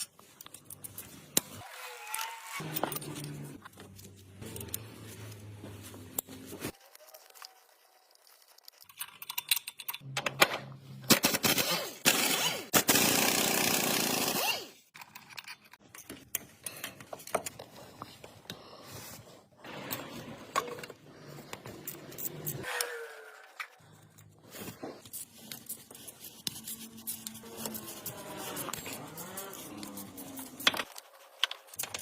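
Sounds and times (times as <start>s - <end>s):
hand tools clicking and clattering: 25.0s - 32.0s.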